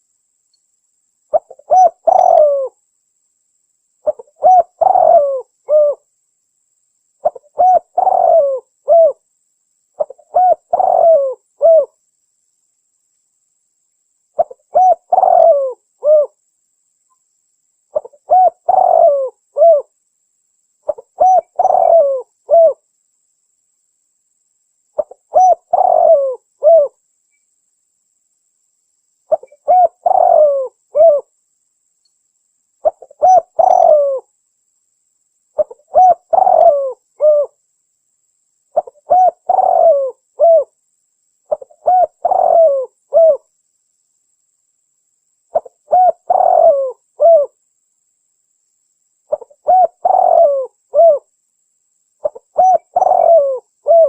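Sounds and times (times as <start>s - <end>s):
dove cooing: 1.3s - 2.8s, 4.0s - 6.1s, 7.2s - 9.2s, 10.0s - 12.0s, 14.4s - 16.4s, 17.9s - 19.9s, 20.9s - 22.8s, 25.0s - 27.0s, 29.3s - 31.3s, 32.8s - 34.3s, 35.6s - 37.6s, 38.8s - 40.7s, 41.5s - 43.5s, 45.5s - 47.6s, 49.3s - 51.3s, 52.2s - 54.0s.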